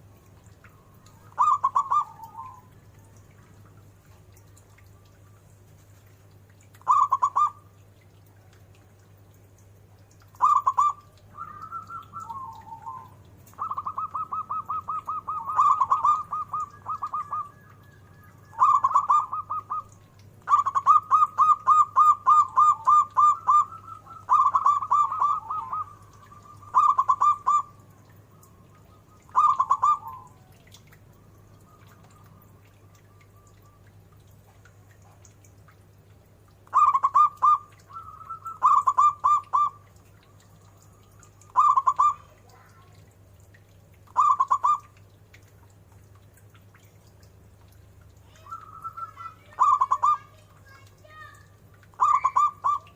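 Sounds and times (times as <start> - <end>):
dove cooing: 0.7 - 3.0, 6.8 - 7.6, 10.4 - 30.8, 36.6 - 39.9, 40.9 - 43.0, 44.1 - 44.9, 48.4 - 50.8, 52.0 - 52.9.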